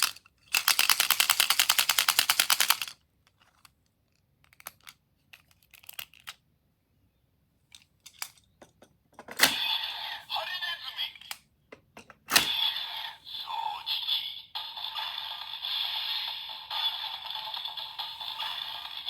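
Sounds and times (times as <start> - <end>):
plastic toy clicking rapidly: 0.0 - 3.0
toy handling clicks and taps: 0.0 - 6.4, 7.7 - 9.6, 11.1 - 12.6
loud toy sound: 12.3 - 19.0.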